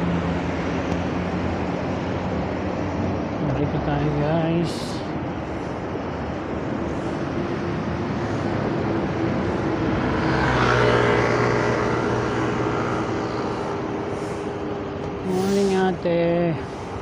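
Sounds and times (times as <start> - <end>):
passing traffic rush: 0.0 - 17.0
motor vehicle engine passing: 7.0 - 15.9.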